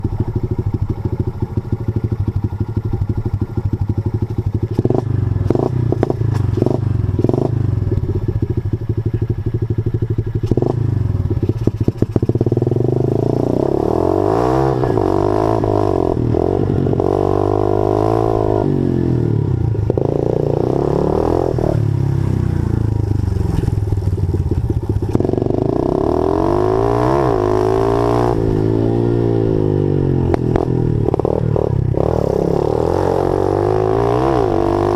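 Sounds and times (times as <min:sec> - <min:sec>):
small motorcycle engine revving: 0:00.0 - 0:34.9.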